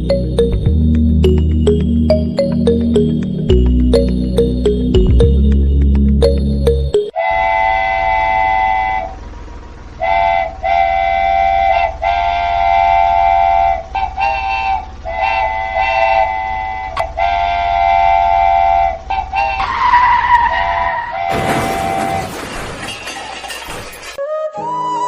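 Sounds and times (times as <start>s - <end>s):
train horn blasts: 7.2s - 22.2s.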